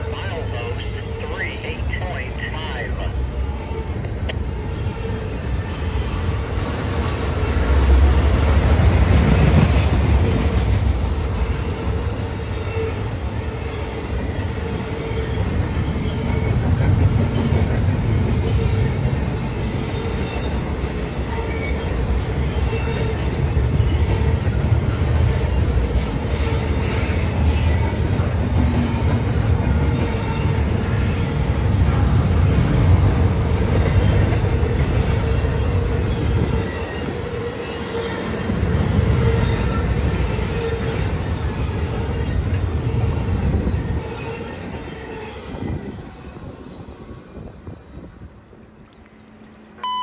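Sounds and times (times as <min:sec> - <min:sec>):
freight train wheels rumbling: 0:00.0 - 0:50.0.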